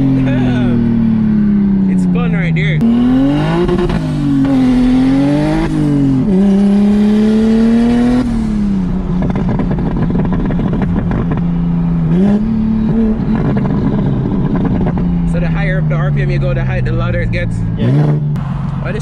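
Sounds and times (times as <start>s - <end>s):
turbo car engine accelerating: 0.0s - 19.0s
engine crackling and popping: 7.7s - 19.0s.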